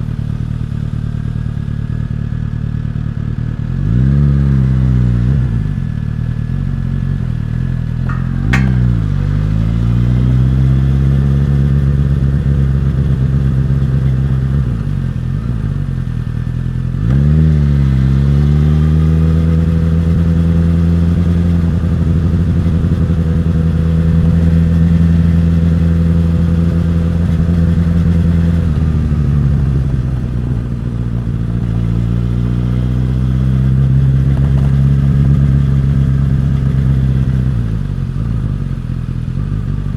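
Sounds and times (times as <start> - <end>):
motorcycle engine and exhaust: 1.6 - 39.9
sharp click: 8.1 - 9.5.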